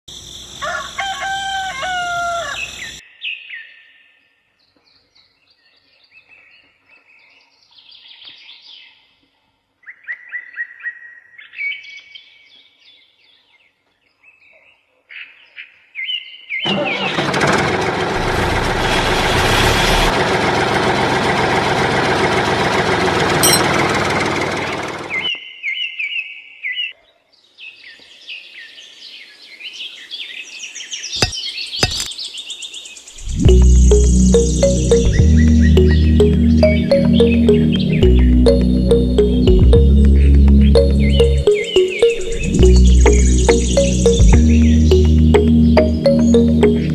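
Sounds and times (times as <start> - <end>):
rooster crowing: 0.6 - 3.0
small birds chirping: 40.0 - 46.9.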